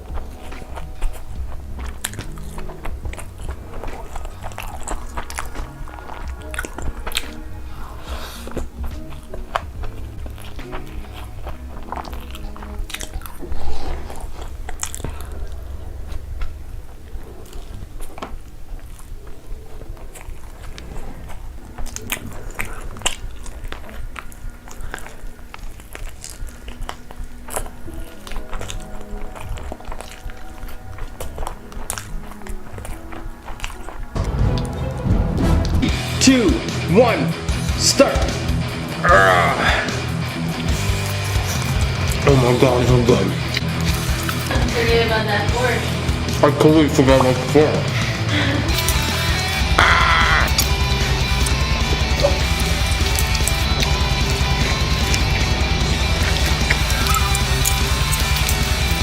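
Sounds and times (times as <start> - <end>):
crunchy biting and chewing: 0.0 - 34.2, 43.4 - 44.5, 48.7 - 59.0
background music with bass: 34.2 - 59.0
sharp clicks and crackles: 48.7 - 59.0.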